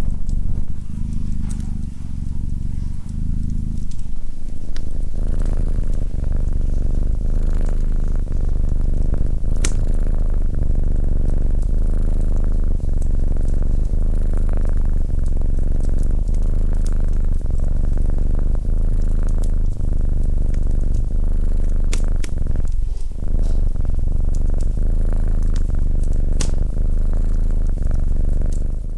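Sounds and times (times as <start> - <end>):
cat purring: 0.0 - 28.9
sharp clicks: 9.5 - 9.9, 26.4 - 26.7.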